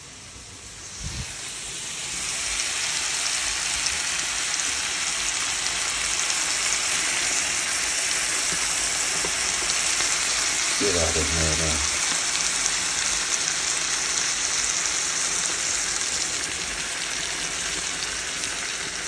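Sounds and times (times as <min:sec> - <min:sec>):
meatballs sizzling in a pan: 0:00.1 - 0:19.0.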